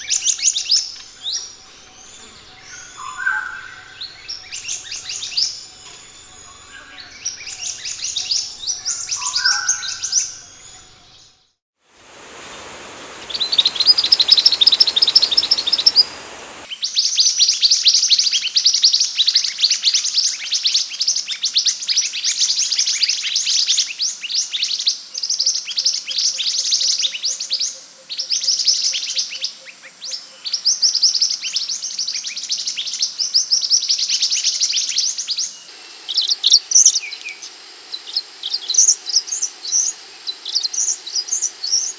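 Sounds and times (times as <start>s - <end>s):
background hiss: 0.0s - 41.9s
bird rapid high chirps: 12.0s - 16.7s.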